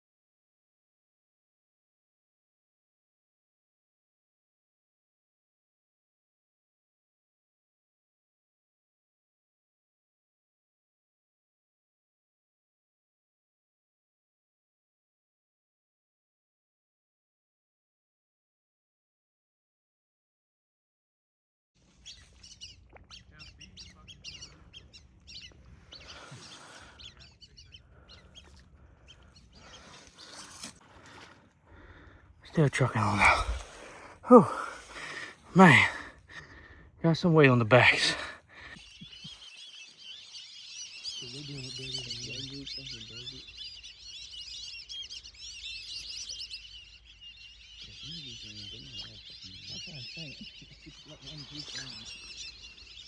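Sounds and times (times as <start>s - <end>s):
whistling ducks calling: 21.8s - 53.0s
low voice murmuring: 32.4s - 36.4s.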